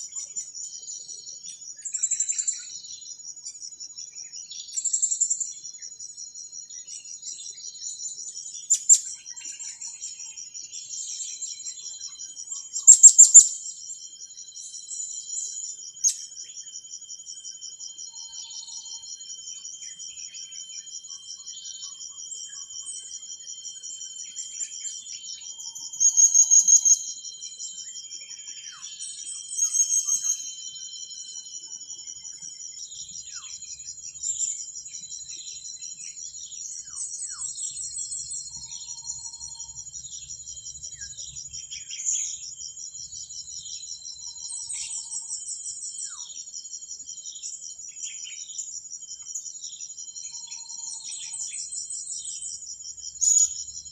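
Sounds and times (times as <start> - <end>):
insects trilling: 0.0 - 53.9
high bird chirps: 12.8 - 13.6.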